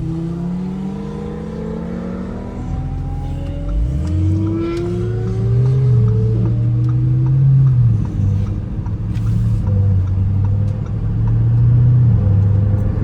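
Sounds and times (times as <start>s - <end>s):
car engine cruising: 0.0s - 13.0s.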